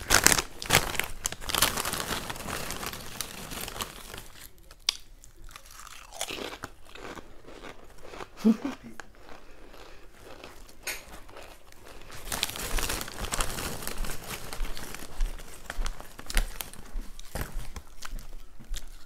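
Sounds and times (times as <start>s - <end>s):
person chewing food: 2.6s - 12.3s.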